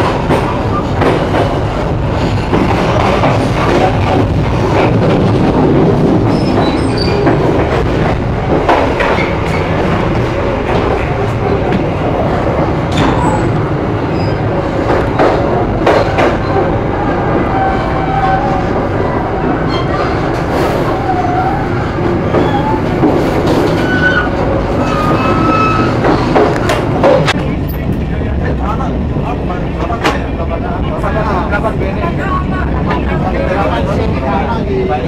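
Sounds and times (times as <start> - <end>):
wheels clacking over rails: 0.0 - 16.8
train running rumble: 0.0 - 35.0.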